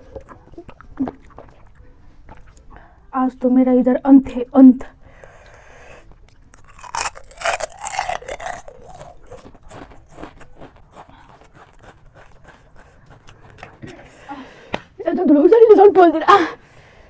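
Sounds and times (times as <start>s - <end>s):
crunching crisp snack food: 6.3s - 13.8s.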